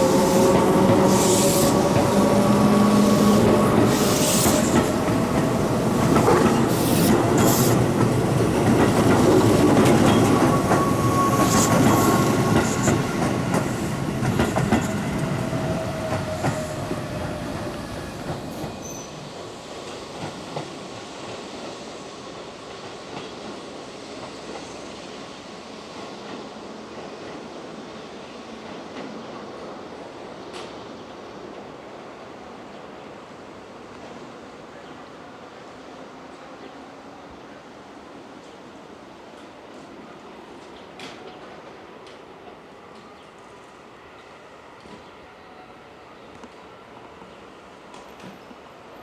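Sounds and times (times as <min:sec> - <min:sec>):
electric train pulling out: 0:00.0 - 0:20.2.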